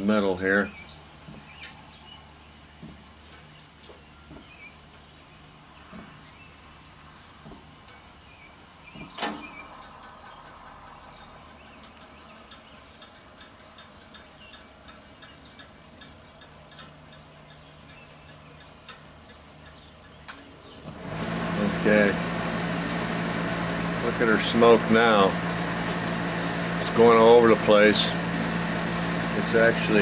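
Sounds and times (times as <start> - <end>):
gas heater hum: 0.0 - 30.0
sharp click: 9.0 - 10.4
light irregular ticking: 9.8 - 20.5.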